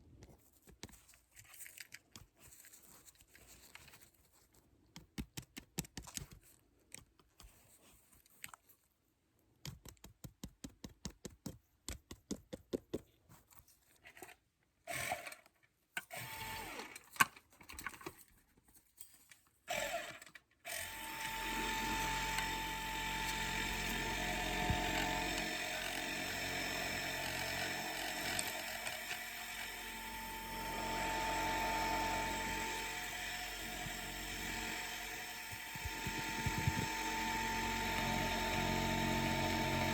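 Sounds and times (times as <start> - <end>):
small clicks and taps: 4.8 - 8.7, 9.6 - 13.6
dentist's drill whine: 16.1 - 16.9, 20.7 - 39.9.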